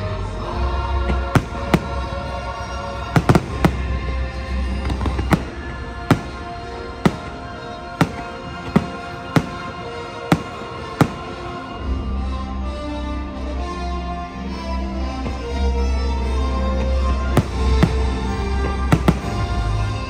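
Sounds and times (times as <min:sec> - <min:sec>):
fireworks show music: 0:00.0 - 0:20.0
fireworks bursting with sharp bangs: 0:01.0 - 0:11.9, 0:15.2 - 0:20.0.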